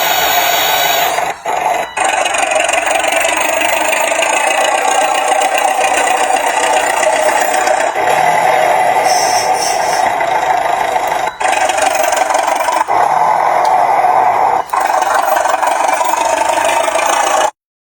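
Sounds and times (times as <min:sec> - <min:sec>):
toy excavator motors and gears rattling: 0:00.0 - 0:17.6.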